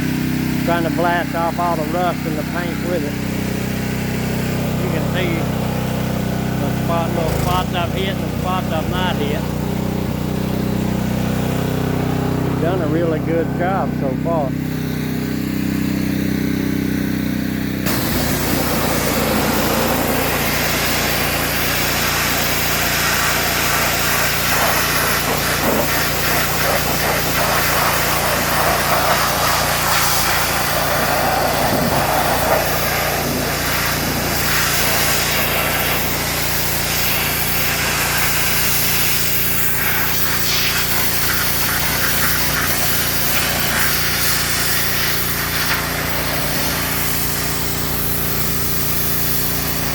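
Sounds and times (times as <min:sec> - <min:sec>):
pressure washer running: 0:00.0 - 0:49.9
hissing water jet on metal: 0:17.9 - 0:49.9.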